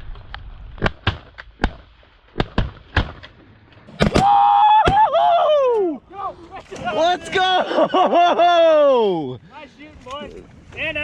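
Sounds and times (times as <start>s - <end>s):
shotgun shots: 0.8s - 3.3s, 3.9s - 4.3s
person yelling: 4.2s - 7.7s, 8.4s - 9.3s.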